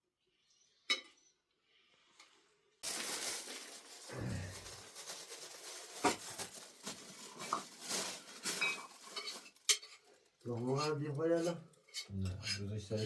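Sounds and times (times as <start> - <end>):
kitchenware clinking and clattering: 5.7 - 13.0.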